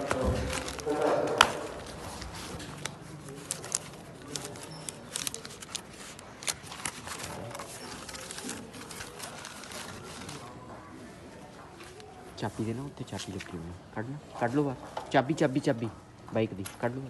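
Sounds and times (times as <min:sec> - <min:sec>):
parcel clicks and crinkles: 0:00.0 - 0:10.7.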